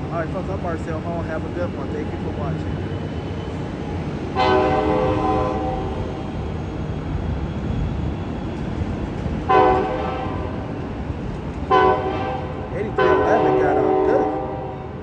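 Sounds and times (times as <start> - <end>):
train running rumble: 0.0 - 15.0
train horn blasts: 4.4 - 6.2, 9.5 - 10.6, 11.7 - 15.0.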